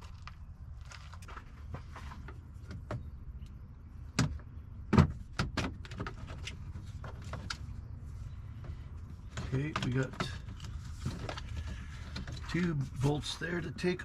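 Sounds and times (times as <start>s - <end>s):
parts clicking and knocking: 8.6s - 12.8s.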